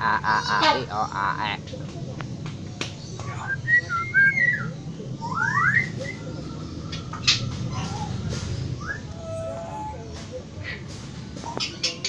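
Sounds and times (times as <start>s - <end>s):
bird whistling: 3.4s - 10.2s.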